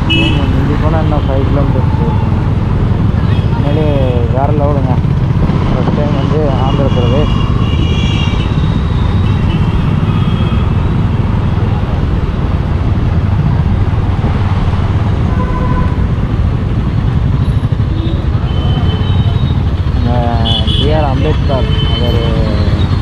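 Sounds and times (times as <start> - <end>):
motorcycle engine: 0.0 - 23.0
wind and road noise: 0.0 - 23.0
car horn toots: 6.6 - 10.7, 15.3 - 16.0.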